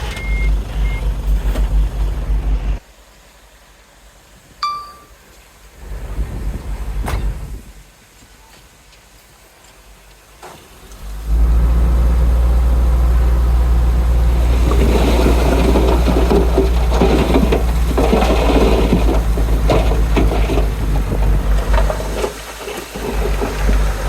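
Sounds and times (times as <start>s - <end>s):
heavy diesel engine droning: 0.0s - 2.8s, 11.0s - 22.3s, 23.0s - 24.0s
rattling and scraping: 11.1s - 24.0s.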